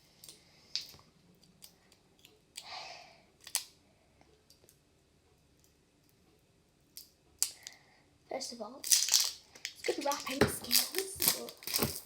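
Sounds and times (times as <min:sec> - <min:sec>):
crinkling rustle: 0:08.8 - 0:12.0.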